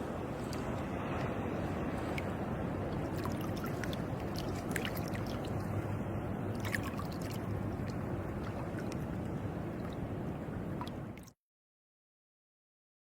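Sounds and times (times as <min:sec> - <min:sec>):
seawater sloshing: 0:00.0 - 0:10.1
low water rush: 0:00.0 - 0:11.4
water drips and splashes: 0:02.0 - 0:05.9, 0:06.5 - 0:10.1, 0:10.7 - 0:11.4.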